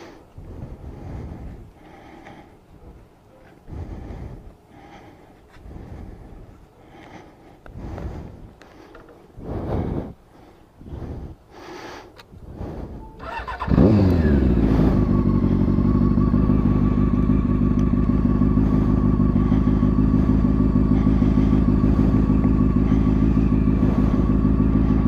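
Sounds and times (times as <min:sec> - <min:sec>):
motorcycle engine starting and idling: 0:13.0 - 0:25.0.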